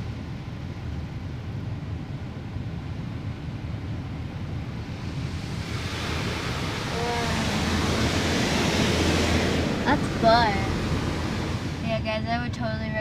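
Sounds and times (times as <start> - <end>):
low rumble: 0.0 - 13.0
car wash water spray hissing: 4.8 - 11.8.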